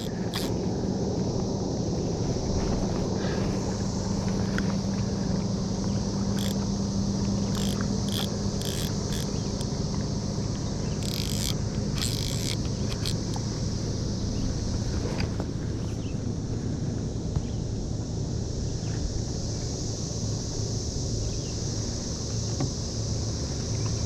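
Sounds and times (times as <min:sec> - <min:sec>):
short clicks and scrapes: 0:00.0 - 0:00.5, 0:06.4 - 0:06.6, 0:07.5 - 0:09.7, 0:11.0 - 0:13.4
cicadas droning chorus: 0:00.0 - 0:24.0.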